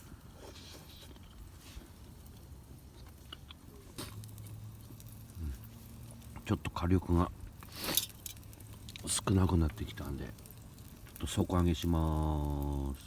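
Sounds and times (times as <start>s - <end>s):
person chewing food: 3.0s - 4.6s.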